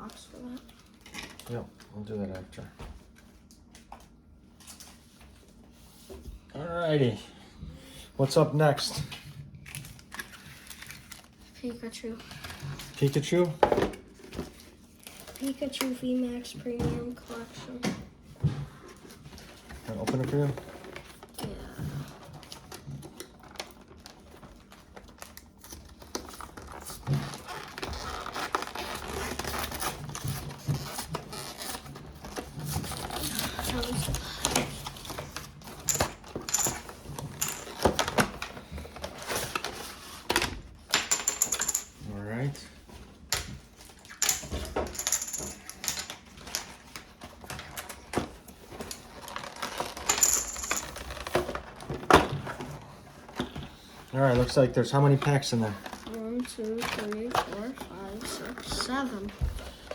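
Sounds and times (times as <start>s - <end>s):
cardboard and plastic packaging rustling: 0.0s - 6.4s, 8.2s - 40.9s, 41.7s - 59.9s
packaging crinkling and tearing: 9.6s - 11.5s, 23.2s - 33.9s, 48.9s - 50.1s.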